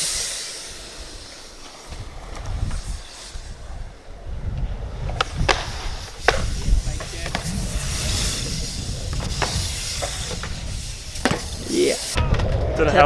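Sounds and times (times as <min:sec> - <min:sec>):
bike wheels rolling on concrete: 0:00.0 - 0:13.0
bike landings knocking on concrete: 0:05.0 - 0:12.8.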